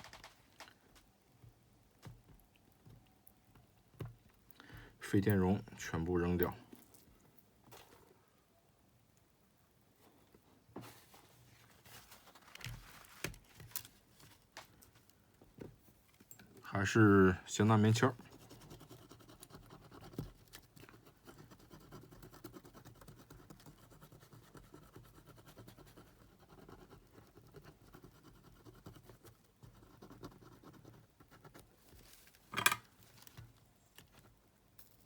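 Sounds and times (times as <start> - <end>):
cotton swab scratching: 18.2 - 31.7.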